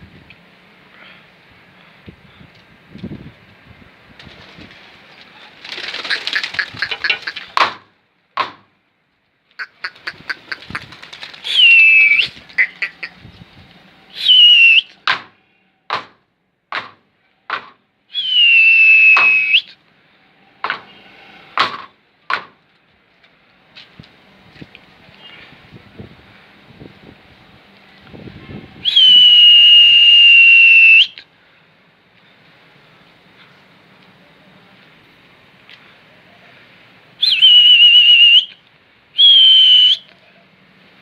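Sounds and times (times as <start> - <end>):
person whistling: 11.5 - 12.3, 14.2 - 14.9, 18.1 - 19.7, 37.2 - 38.5, 39.2 - 40.1.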